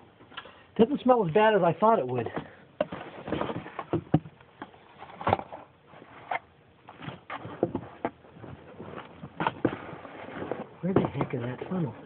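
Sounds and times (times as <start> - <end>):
objects knocking and clattering: 2.2 - 5.7, 6.3 - 11.7.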